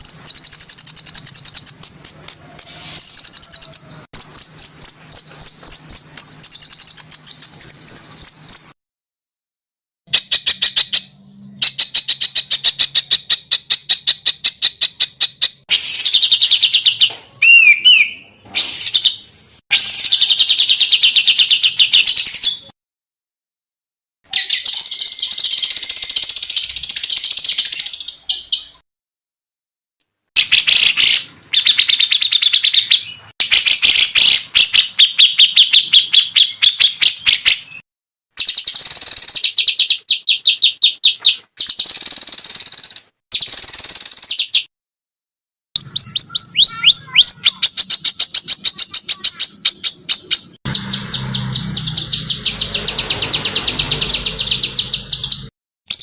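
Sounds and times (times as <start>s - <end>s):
songbird trilling: 0.0s - 8.7s, 45.8s - 56.0s.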